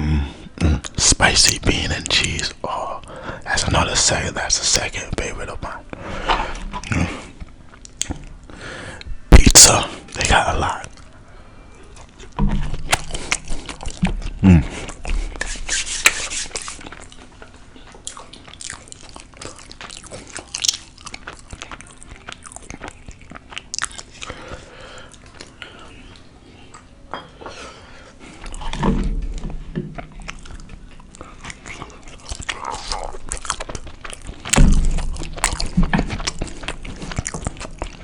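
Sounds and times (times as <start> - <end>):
food crunching: 6.2 - 11.2, 11.8 - 27.0, 28.2 - 38.0
chewing with mouth clicks: 6.6 - 8.4, 11.8 - 27.0, 28.2 - 38.0.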